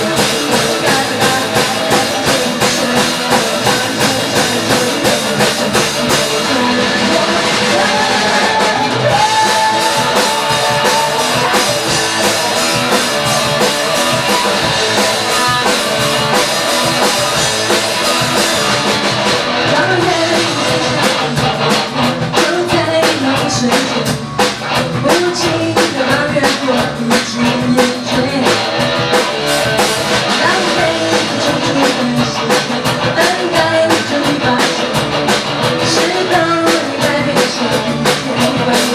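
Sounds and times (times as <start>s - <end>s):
drum hits: 0.0s - 21.8s
person singing: 0.0s - 28.8s, 30.2s - 38.9s
rock band playing: 0.0s - 38.9s.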